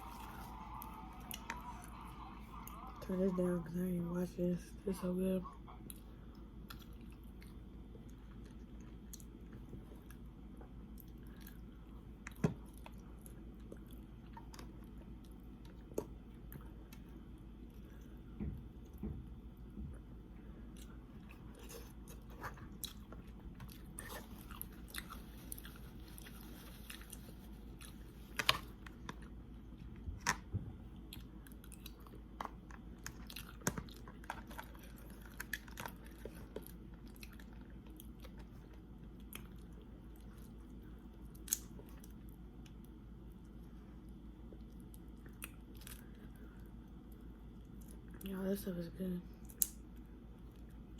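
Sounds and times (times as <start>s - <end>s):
steady low hum: 0.0s - 50.9s
person chewing and biting: 20.7s - 29.3s.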